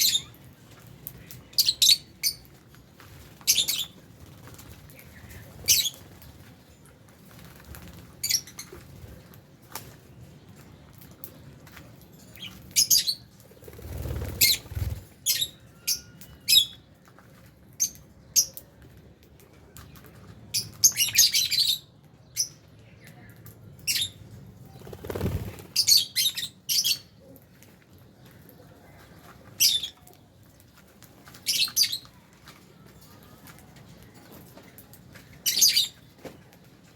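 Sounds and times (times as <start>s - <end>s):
lovebirds shrill chirps: 0.0s - 0.4s, 14.3s - 16.8s, 25.0s - 27.2s, 35.4s - 36.0s
wings flapping: 7.1s - 9.1s, 13.6s - 15.2s, 24.7s - 26.0s.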